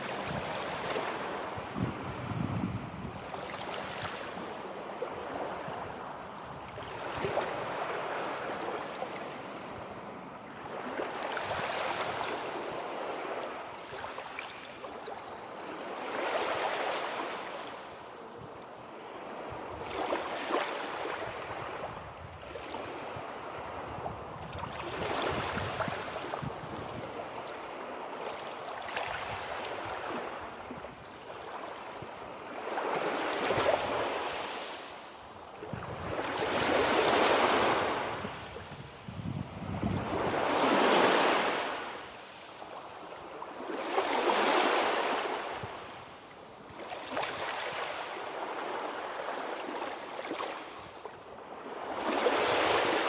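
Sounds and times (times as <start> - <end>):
sea waves breaking on shore: 0.0 - 53.0.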